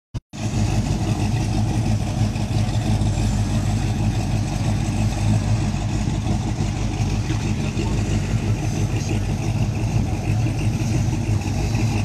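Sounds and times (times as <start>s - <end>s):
car engine idling: 0.3s - 12.0s.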